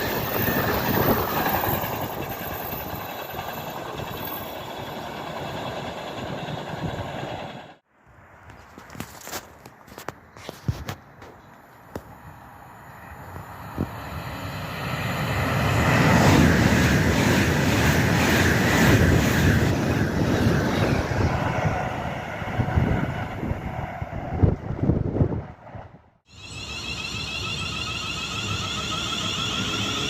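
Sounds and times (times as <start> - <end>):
train wheels rumbling on rails: 0.0 - 7.8, 13.0 - 26.0, 26.8 - 30.0.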